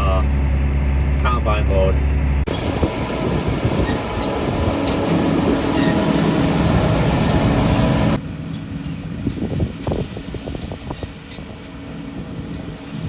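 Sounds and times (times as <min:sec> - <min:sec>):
tractor engine rumbling: 0:02.5 - 0:08.2
wind noise on microphone: 0:02.5 - 0:08.2, 0:09.0 - 0:13.0.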